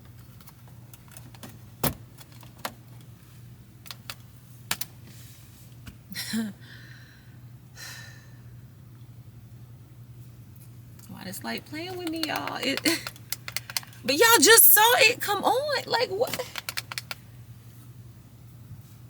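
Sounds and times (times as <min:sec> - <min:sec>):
plastic clicks and taps: 0:11.9 - 0:14.0, 0:16.3 - 0:17.2.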